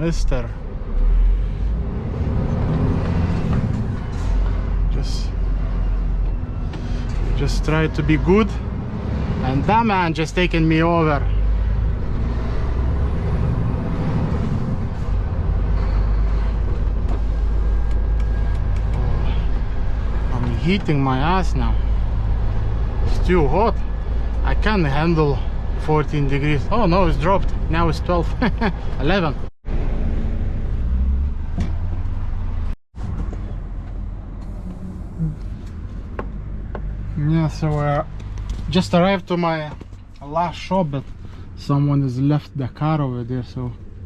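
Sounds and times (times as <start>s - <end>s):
diesel lorry engine droning: 0.0s - 44.0s
lorry engine rumble in cab: 33.0s - 44.0s.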